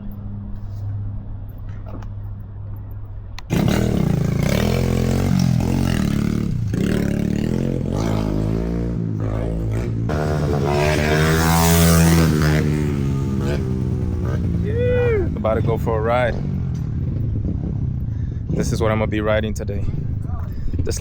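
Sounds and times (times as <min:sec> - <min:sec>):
low engine hum: 0:00.0 - 0:21.0
motorcycle engine revving: 0:03.4 - 0:19.2.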